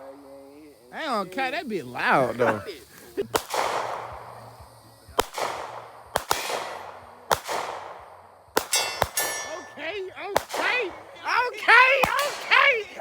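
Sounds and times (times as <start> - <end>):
handgun shots cracking: 3.4 - 4.3, 5.2 - 8.0, 8.6 - 9.7
metallic ringing: 8.7 - 10.1.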